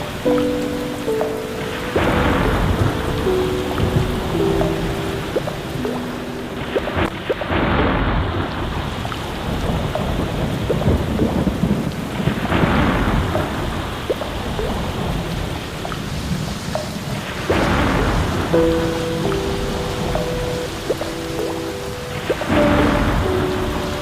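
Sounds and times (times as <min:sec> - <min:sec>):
steady rain falling: 0:00.0 - 0:24.0
low rolling thunder: 0:02.0 - 0:05.6.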